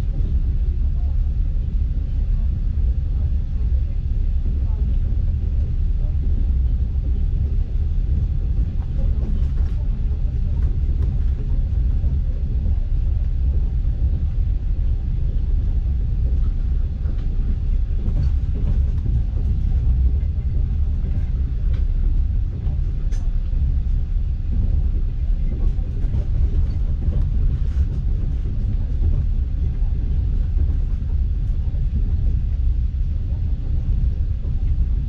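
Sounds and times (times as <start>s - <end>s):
train carriage rumble: 0.0s - 35.0s.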